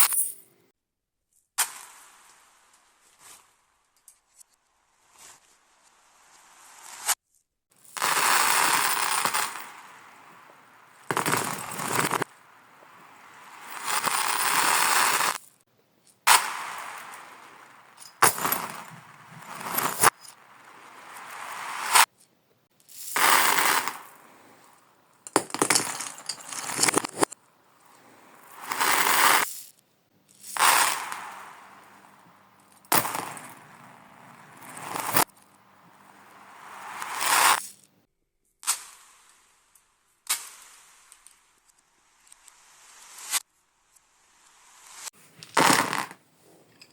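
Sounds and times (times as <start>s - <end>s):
reversed marbles rolling: 7.8s - 15.5s, 16.3s - 22.2s, 22.9s - 29.6s, 30.3s - 37.9s, 44.4s - 46.9s.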